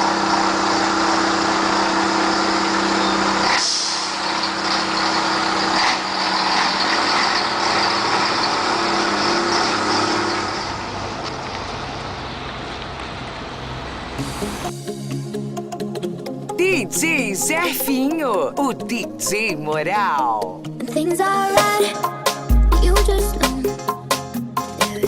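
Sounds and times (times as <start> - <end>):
truck diesel engine running: 0.0 - 14.8
air brake hisses: 3.4 - 4.5.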